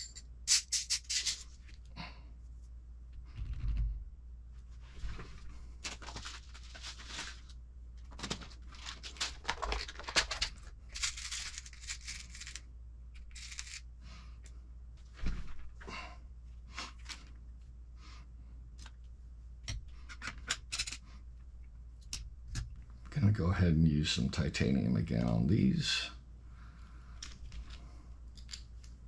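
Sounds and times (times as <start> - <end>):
plastic packaging rustling and tearing: 5.8 - 12.6.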